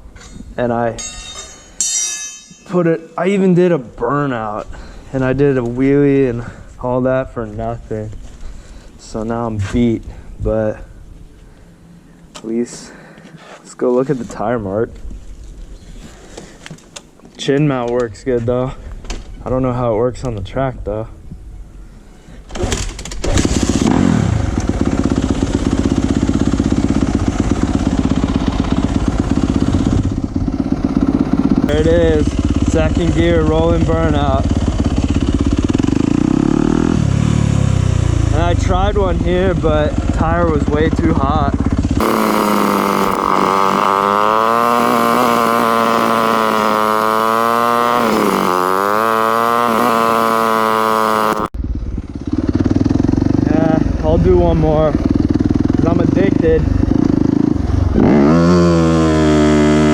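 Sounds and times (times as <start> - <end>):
motorcycle engine revving: 23.4 - 38.6, 41.5 - 53.8, 54.9 - 59.9
low pulsing engine: 37.7 - 57.1.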